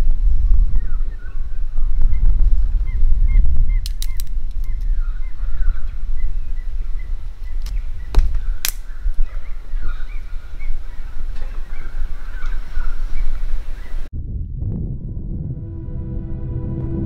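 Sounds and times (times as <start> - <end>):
birds chirping: 0.6 - 14.1
steady low rumble: 14.1 - 17.0.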